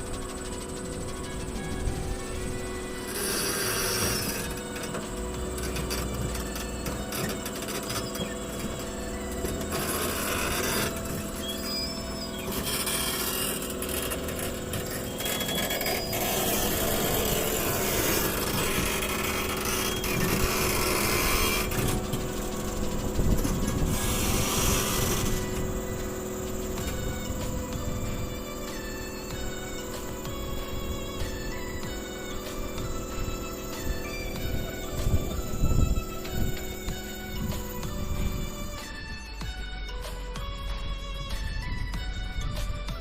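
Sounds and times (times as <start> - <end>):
excavator engine running: 0.0 - 43.0
metal grinding and scraping: 2.8 - 29.3.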